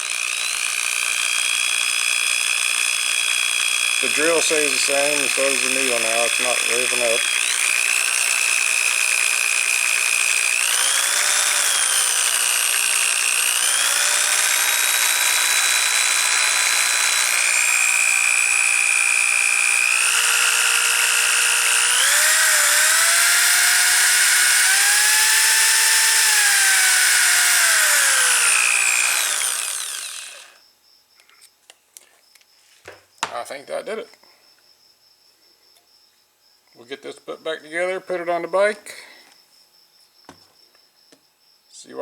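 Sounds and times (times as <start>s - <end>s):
electric drill whine: 0.0s - 30.6s.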